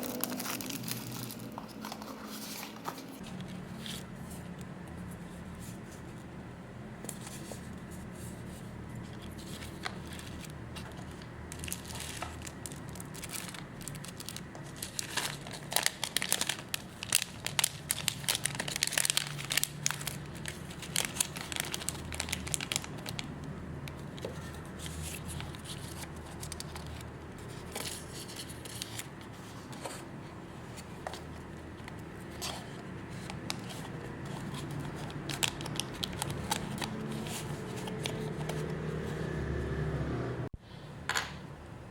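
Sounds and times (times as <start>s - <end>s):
packaging crinkling and tearing: 0.0s - 4.1s, 9.1s - 29.8s, 31.0s - 38.7s
low background hum: 0.0s - 41.9s.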